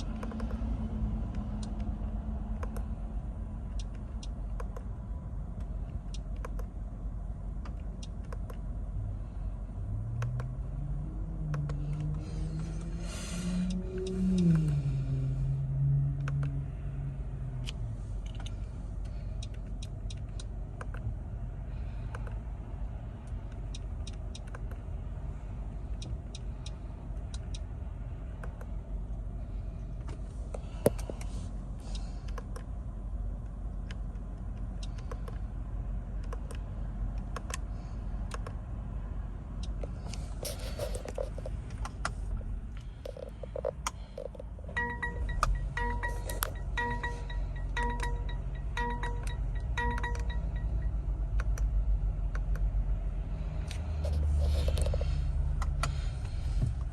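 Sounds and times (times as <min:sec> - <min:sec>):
car cabin rumble: 0:39.4 - 0:51.5, 0:53.7 - 0:56.9.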